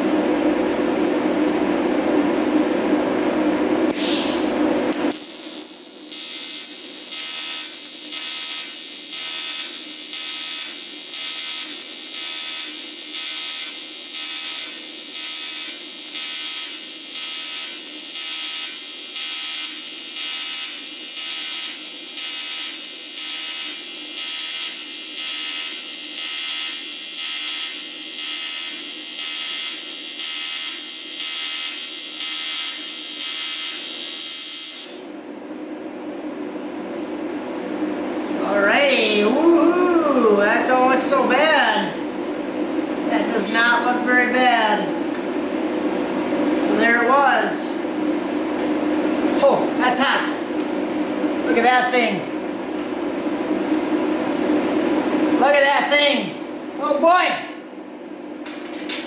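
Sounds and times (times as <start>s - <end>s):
welding arc buzzing: 3.9s - 35.2s.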